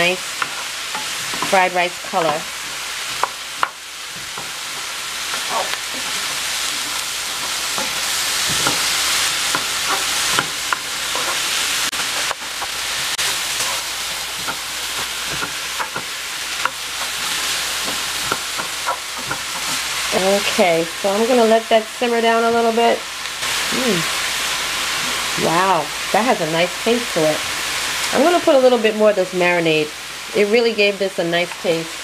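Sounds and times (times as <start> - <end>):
vegetables sizzling in frying pan: 0.0 - 32.0
wooden spoon scraping pan: 0.4 - 20.6.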